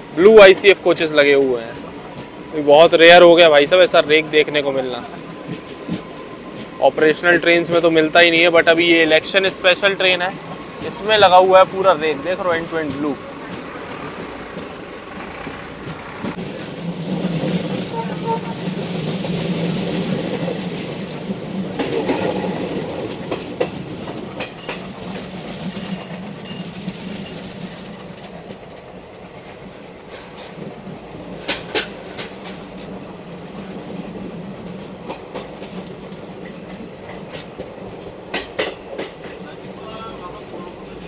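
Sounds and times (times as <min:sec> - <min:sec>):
train rumble: 0:00.0 - 0:41.0
train wheels clicking over rail joints: 0:00.0 - 0:41.0.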